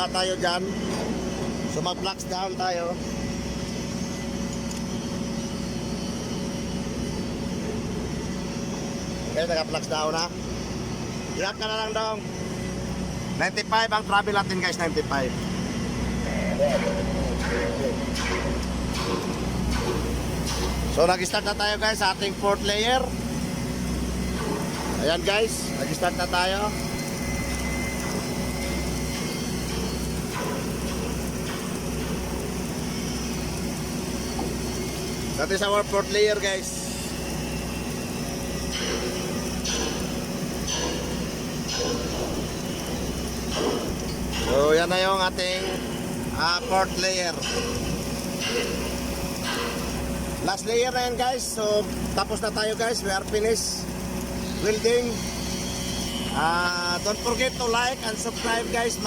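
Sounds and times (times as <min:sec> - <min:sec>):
welding machinery humming: 0:00.0 - 0:59.0.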